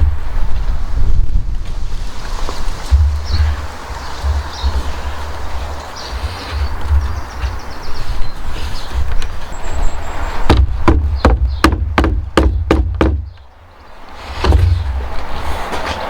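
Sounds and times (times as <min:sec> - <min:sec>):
knocks on timber: 0:02.9 - 0:07.6, 0:10.4 - 0:13.5, 0:14.3 - 0:15.3.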